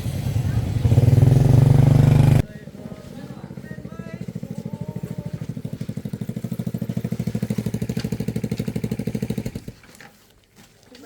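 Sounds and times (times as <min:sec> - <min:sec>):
motorbike engine puttering: 0:00.0 - 0:10.2.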